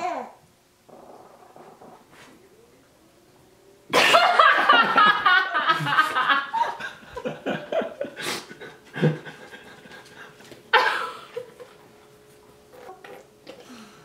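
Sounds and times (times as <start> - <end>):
people laughing: 3.9 - 11.7.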